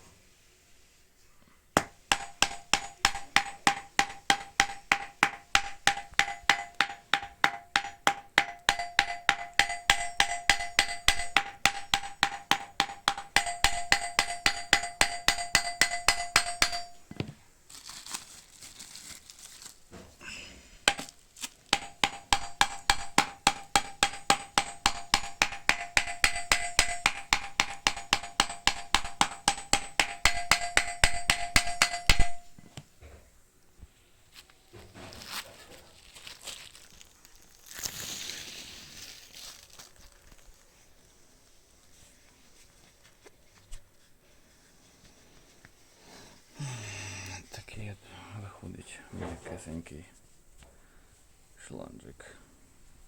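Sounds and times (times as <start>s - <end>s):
hammer blows with ringing tone: 1.8s - 17.2s, 21.8s - 32.6s
rubbing and handling hose: 33.8s - 46.6s.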